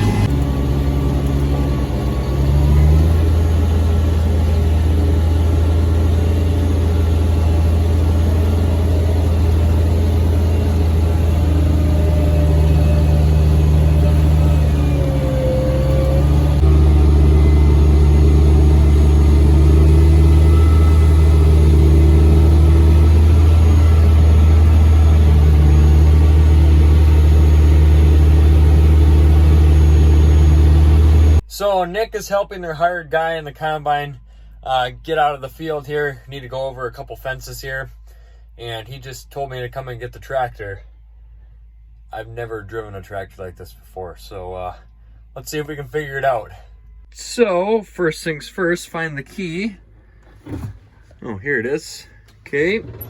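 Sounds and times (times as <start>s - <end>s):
tractor engine running: 0.0s - 31.4s, 47.2s - 53.0s.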